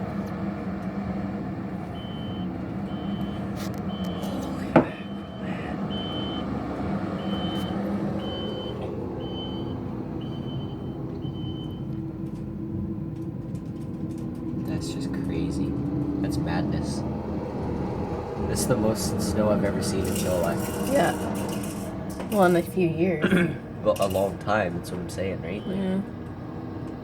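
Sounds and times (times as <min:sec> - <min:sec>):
diesel engine running: 0:00.0 - 0:27.0
backup alarm beeping: 0:01.8 - 0:11.9, 0:25.5 - 0:26.1.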